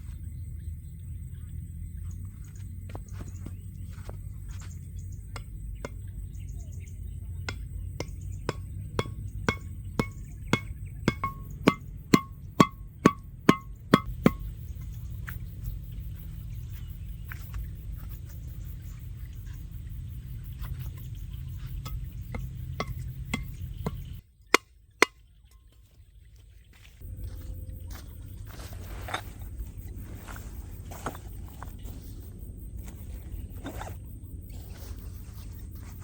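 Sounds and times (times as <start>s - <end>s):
steady low rumble: 0.0s - 24.3s.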